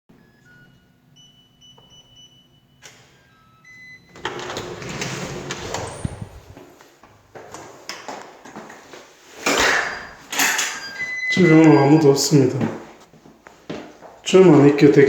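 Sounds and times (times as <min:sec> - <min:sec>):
keypad electronic beeps: 0:00.2 - 0:04.2, 0:10.8 - 0:12.2
door rattling open: 0:04.1 - 0:06.6.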